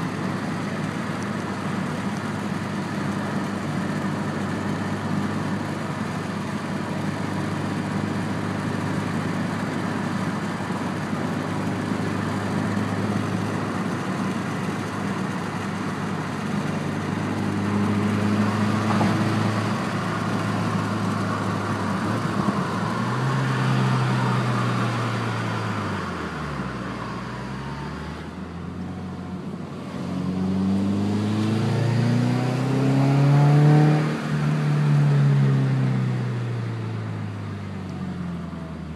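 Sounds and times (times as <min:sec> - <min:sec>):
car engine revving: 0:29.8 - 0:35.3.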